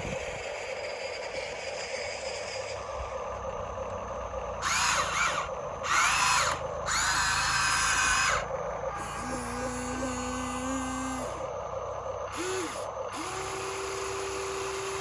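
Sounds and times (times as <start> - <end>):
small electric motor whining: 4.6 - 11.6, 12.2 - 15.0.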